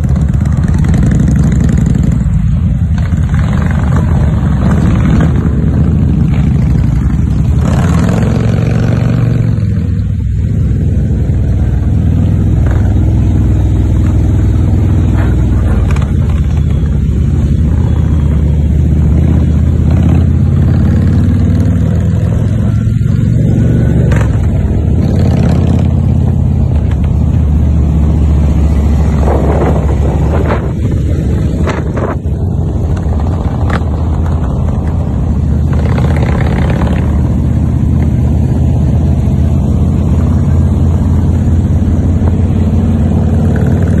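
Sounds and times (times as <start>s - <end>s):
motorcycle engines rumbling: 0.0s - 44.0s
wind noise rushes: 21.8s - 38.8s.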